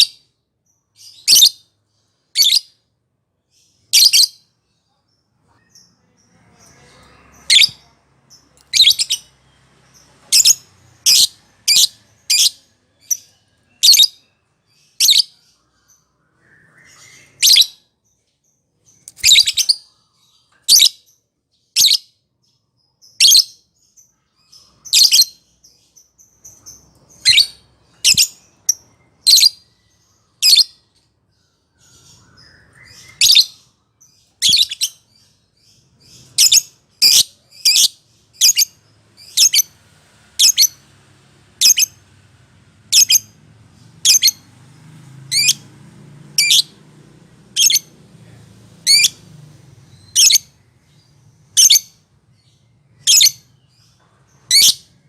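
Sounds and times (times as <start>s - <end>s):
bird chirping high-pitched: 0.0s - 41.0s, 41.6s - 42.2s, 42.8s - 45.7s, 46.3s - 46.8s, 47.5s - 55.0s.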